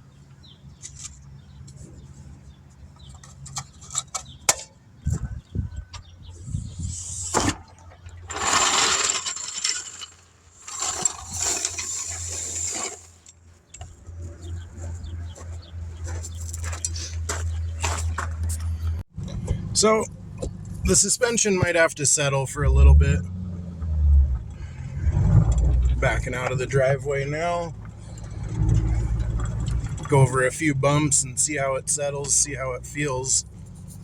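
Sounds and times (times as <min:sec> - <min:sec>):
car engine running: 0:13.4 - 0:34.0.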